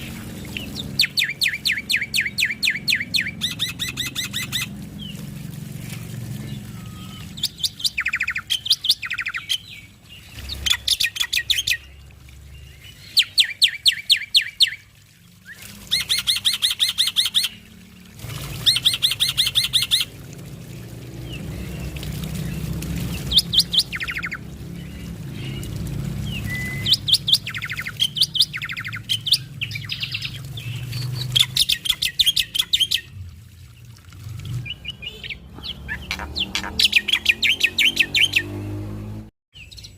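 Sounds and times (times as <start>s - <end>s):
starling chattering song: 34.7s - 38.4s.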